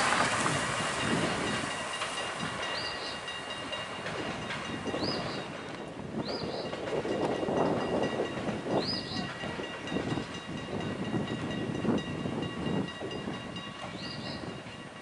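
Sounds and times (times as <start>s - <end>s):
freight train wheels clattering: 0.0s - 15.0s.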